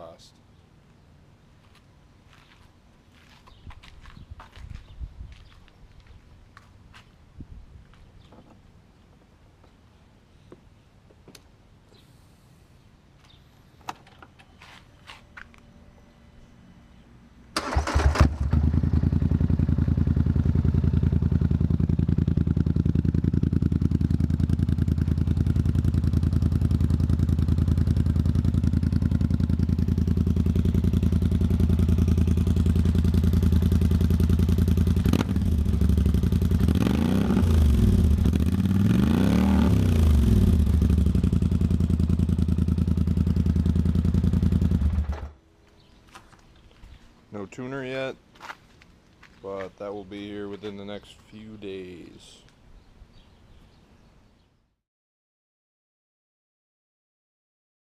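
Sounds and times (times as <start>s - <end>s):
atv engine idling and revving: 17.9s - 45.3s.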